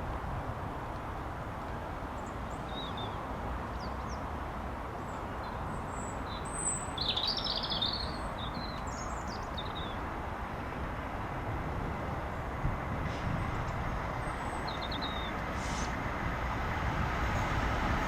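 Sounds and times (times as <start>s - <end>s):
small songbirds chirping: 1.7s - 4.3s, 5.0s - 10.1s, 13.5s - 16.0s.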